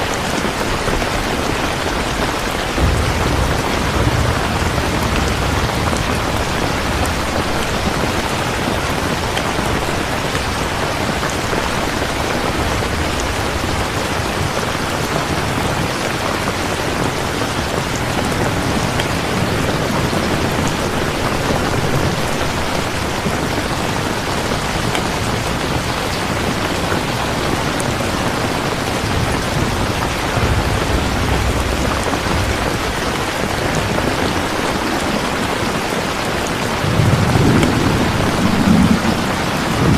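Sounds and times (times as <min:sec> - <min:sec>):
heavy rain falling: 0:00.0 - 0:39.9
low rumble: 0:02.6 - 0:14.6, 0:29.5 - 0:34.5, 0:36.8 - 0:39.9.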